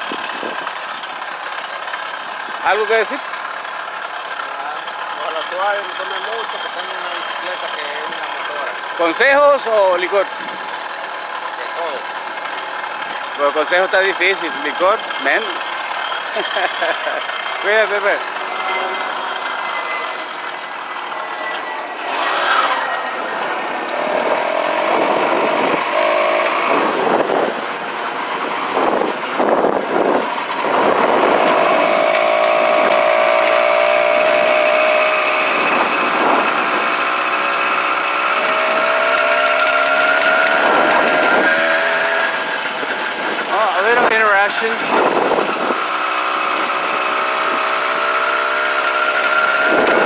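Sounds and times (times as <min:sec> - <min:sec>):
small gasoline engine running: 0:00.0 - 0:50.0.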